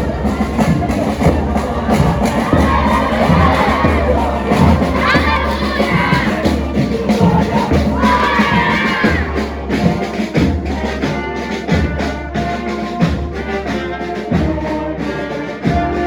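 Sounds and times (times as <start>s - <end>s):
low drum beat: 0.0s - 12.0s
marching band playing: 0.0s - 16.0s.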